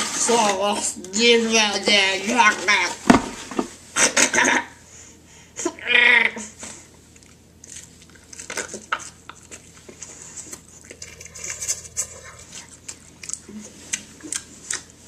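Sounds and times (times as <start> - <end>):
chewing crunchy fried chicken: 6.9 - 15.0.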